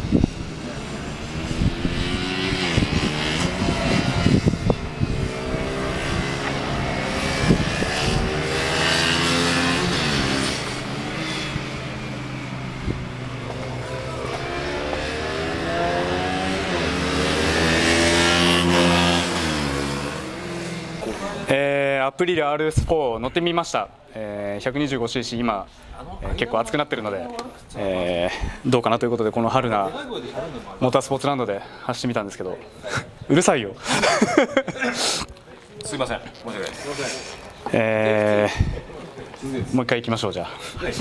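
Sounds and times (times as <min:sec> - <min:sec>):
motorcycle engine revving: 0:00.0 - 0:21.5.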